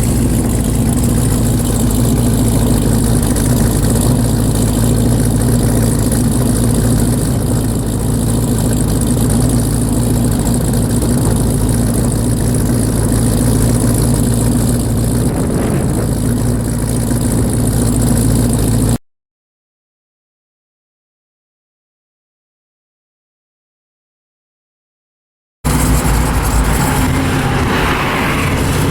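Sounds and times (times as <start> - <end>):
car engine running steadily: 0.0 - 19.0, 25.7 - 28.9.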